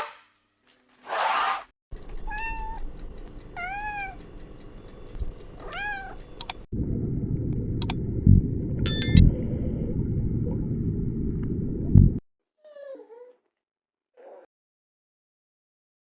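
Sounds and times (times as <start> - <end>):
cat meowing: 2.3 - 2.8, 3.6 - 4.2, 5.6 - 6.2.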